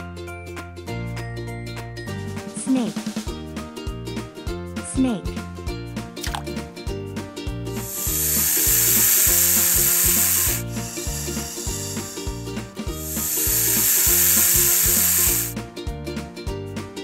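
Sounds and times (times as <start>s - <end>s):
background music with beat: 0.0s - 17.0s
snake hissing: 7.8s - 15.6s.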